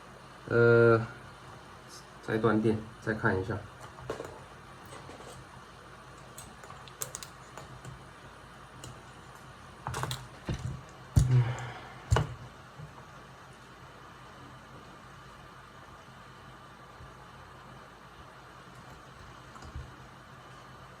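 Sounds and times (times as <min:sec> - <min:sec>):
steady low hum: 0:00.0 - 0:21.0
tools clicking and tapping: 0:03.8 - 0:05.5, 0:06.1 - 0:08.0, 0:08.8 - 0:12.4.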